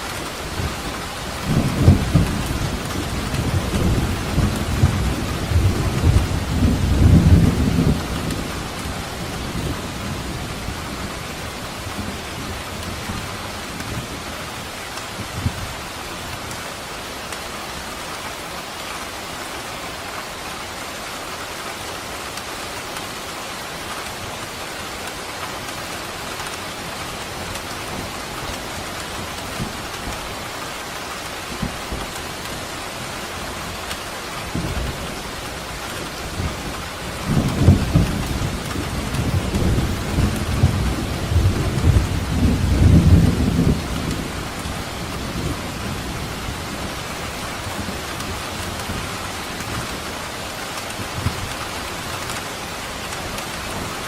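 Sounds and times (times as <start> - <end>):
steady rain falling: 0.0 - 54.0
low rumble of thunder: 0.5 - 14.3, 34.3 - 50.3.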